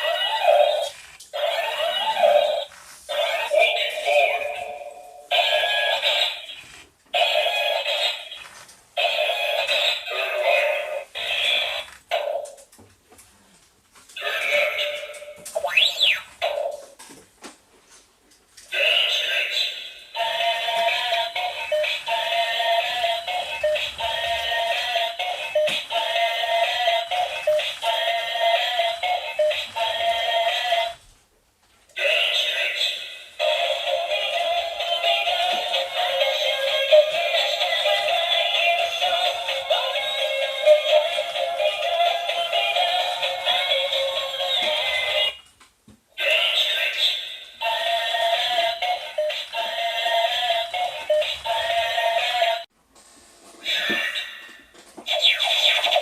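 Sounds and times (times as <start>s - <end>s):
synthetic voice singing: 0.0s - 6.6s, 9.0s - 11.8s, 14.2s - 15.2s, 18.7s - 31.0s, 32.0s - 45.4s, 46.2s - 52.7s
toy robot electronic sound effects: 0.0s - 12.6s, 14.2s - 16.8s, 53.6s - 56.0s
toy speaker electronic tune: 0.0s - 12.6s, 14.2s - 16.9s, 18.8s - 30.9s, 46.2s - 52.6s, 53.6s - 56.0s.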